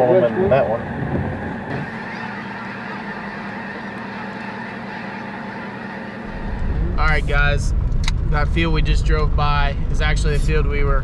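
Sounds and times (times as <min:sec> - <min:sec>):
flock of geese calling: 0:00.6 - 0:06.5.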